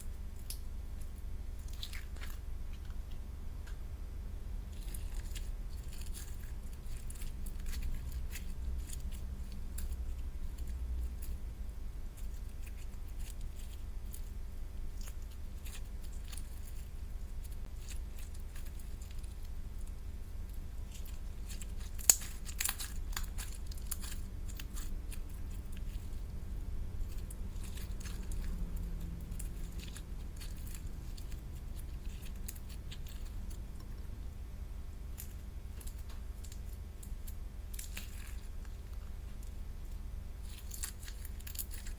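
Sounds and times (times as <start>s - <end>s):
steady low hum: 0.0s - 41.9s
clicks and crinkles of packaging: 35.2s - 41.9s.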